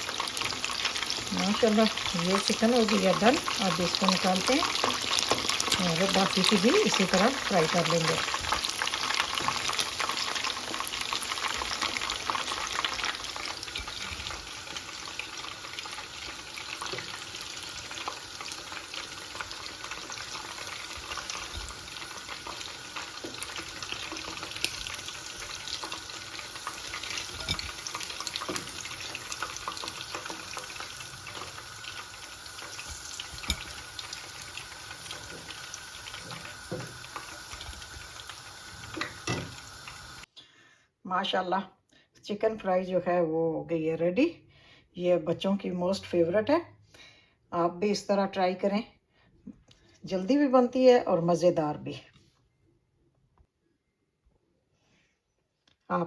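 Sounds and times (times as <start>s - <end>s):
chicken frying in oil: 0.0s - 40.3s.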